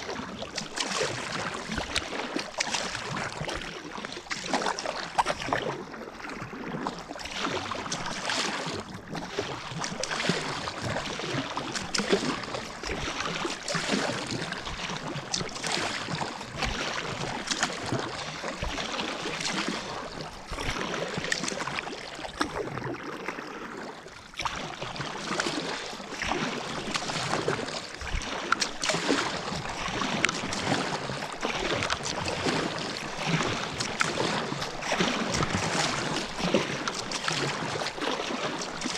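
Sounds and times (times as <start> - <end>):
paddle splashing in water: 0.0 - 38.9
water washing along hull: 0.0 - 38.9.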